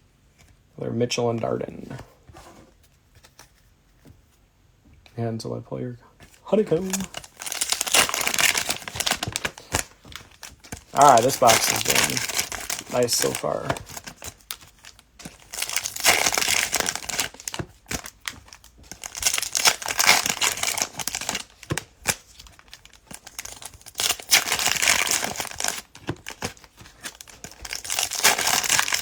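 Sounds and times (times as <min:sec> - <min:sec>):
cellophane wrappers crinkling and tearing: 0:06.4 - 0:29.0.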